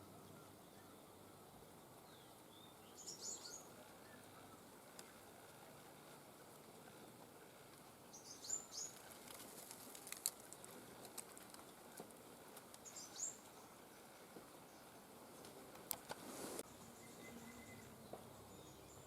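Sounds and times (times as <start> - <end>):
songbird high chirping calls: 0.0 - 4.7, 8.1 - 9.0, 12.8 - 13.8, 16.7 - 19.0
faint sharp clicks: 4.9 - 5.2.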